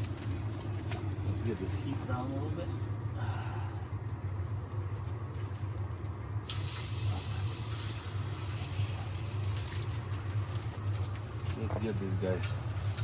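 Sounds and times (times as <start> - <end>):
steady low hum: 0.0 - 13.0
food sizzling on a griddle: 6.5 - 13.0.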